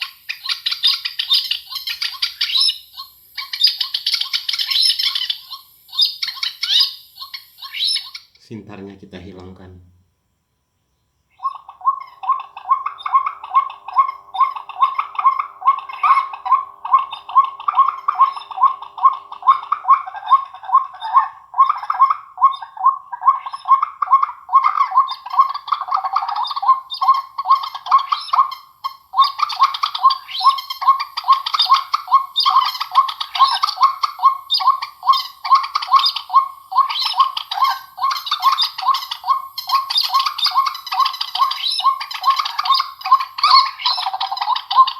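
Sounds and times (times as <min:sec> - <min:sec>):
recorded bird chirps through speaker: 0:00.0 - 0:44.9.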